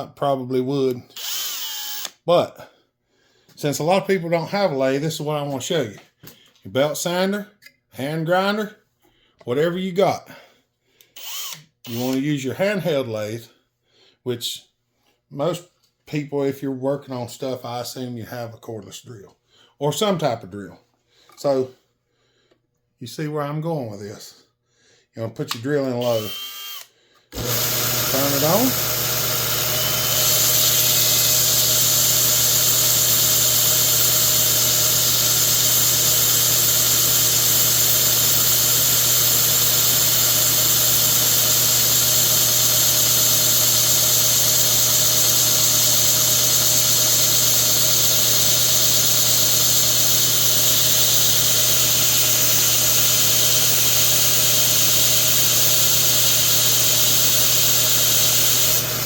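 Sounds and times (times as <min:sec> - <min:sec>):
cordless drill motor hum: 0:01.1 - 0:02.2, 0:11.0 - 0:12.2, 0:26.0 - 0:59.0
high grinding hiss: 0:27.4 - 0:59.0.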